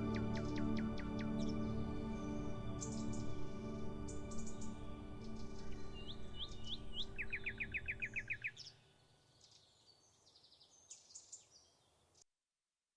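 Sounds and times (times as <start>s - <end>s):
soft ambient music: 0.0s - 8.7s
faint bird chirps: 0.0s - 12.2s
songbirds singing: 0.0s - 12.2s.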